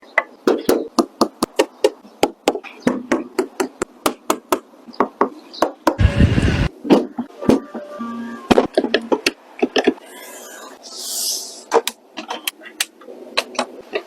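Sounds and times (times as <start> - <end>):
loud rushing burst: 6.0 - 6.7.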